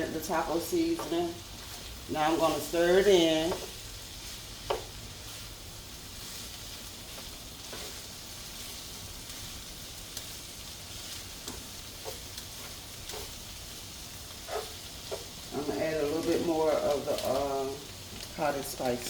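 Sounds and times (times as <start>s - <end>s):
meat sizzling in a pan: 0.0s - 19.0s
spoon scraping a pan: 7.2s - 8.1s, 11.0s - 13.4s, 14.4s - 15.7s.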